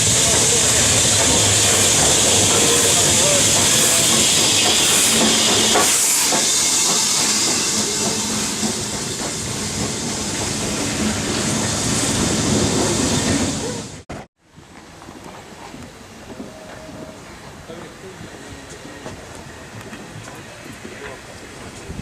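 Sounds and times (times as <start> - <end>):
steam hissing: 0.0 - 14.0
train rumbling: 0.0 - 22.0.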